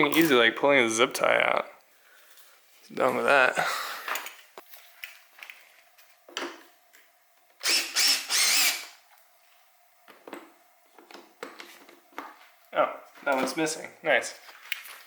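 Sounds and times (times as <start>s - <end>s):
cordless drill whirring: 7.6s - 9.0s.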